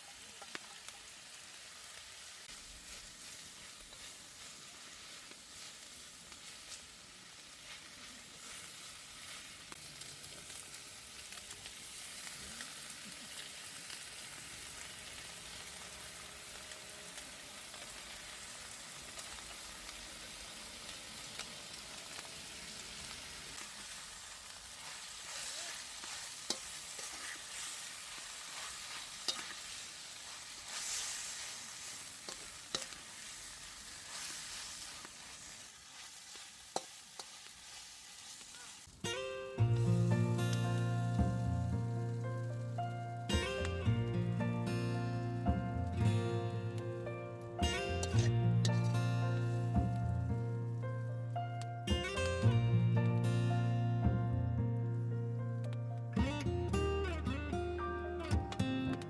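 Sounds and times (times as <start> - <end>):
food sizzling in a wok: 0.0 - 54.2
scrape in a wok: 2.2 - 9.8, 22.8 - 38.9, 48.0 - 48.9.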